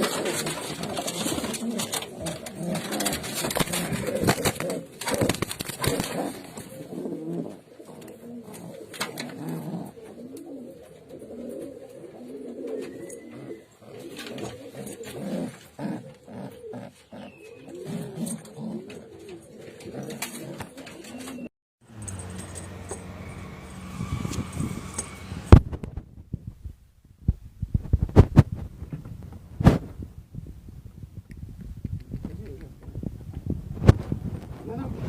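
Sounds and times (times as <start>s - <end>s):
pigeons cooing: 0.0s - 21.5s.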